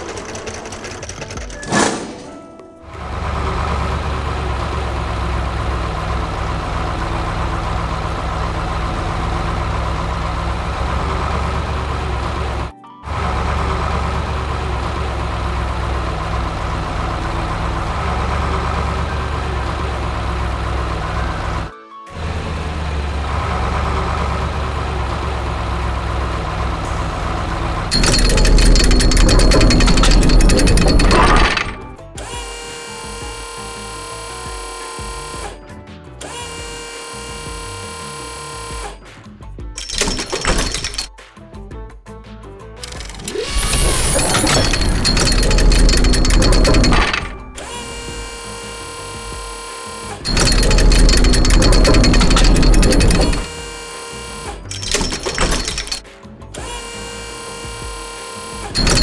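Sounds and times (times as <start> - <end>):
rapid mechanical rattling: 0.0 - 32.7, 39.8 - 41.1, 42.8 - 59.0
heavy vehicle engine idling: 2.9 - 32.3.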